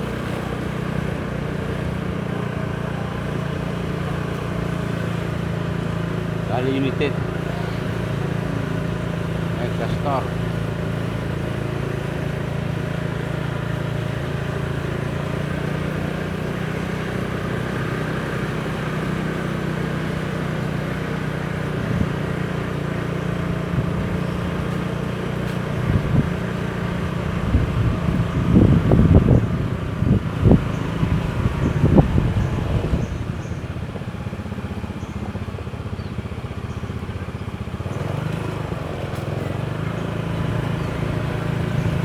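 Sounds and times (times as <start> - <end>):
vehicle engine humming: 0.0 - 42.0
wind noise on microphone: 25.6 - 33.8.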